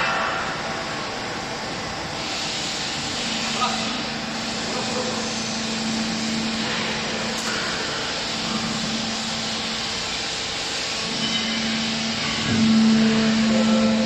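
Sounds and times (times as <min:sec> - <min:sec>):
hydraulic baler motor humming: 0:03.3 - 0:14.0.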